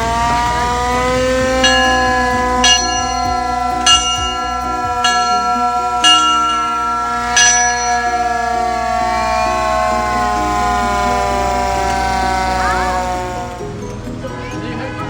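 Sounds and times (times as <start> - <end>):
metal bell ringing: 0.9 - 12.5.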